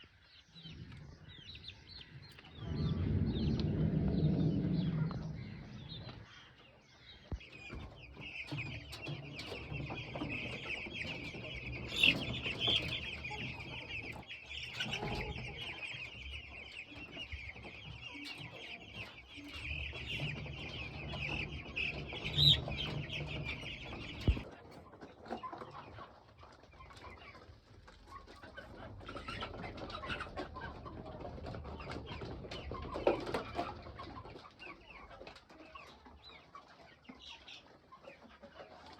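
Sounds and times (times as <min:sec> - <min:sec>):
chickens clucking: 0:00.0 - 0:38.9
chicks peeping: 0:00.0 - 0:38.9.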